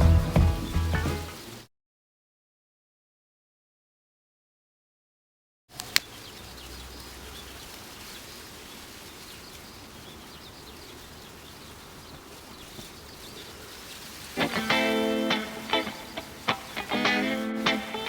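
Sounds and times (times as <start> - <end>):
steady background hiss: 0.7 - 1.7, 5.8 - 18.0
sharp click: 5.8 - 6.1
faint bird chirps: 5.9 - 18.0.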